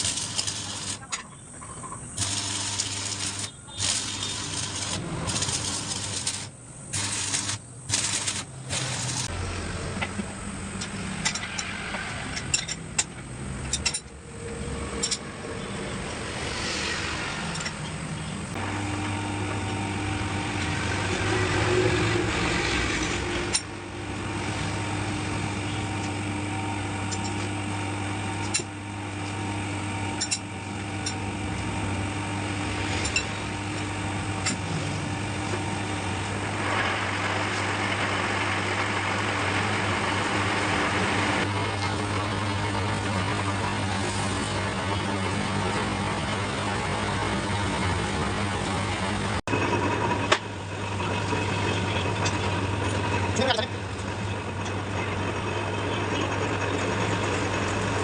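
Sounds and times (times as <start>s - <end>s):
machine motor humming: 0.0s - 1.1s, 2.1s - 10.8s, 18.2s - 22.5s.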